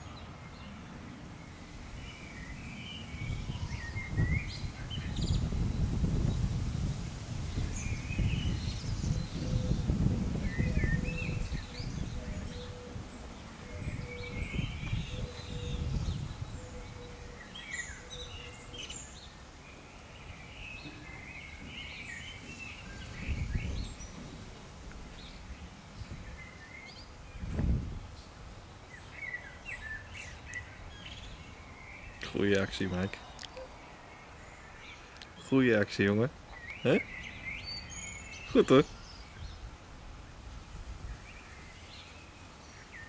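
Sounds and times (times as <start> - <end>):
small birds chirping: 0.0 - 43.0
low thumps: 27.4 - 28.0.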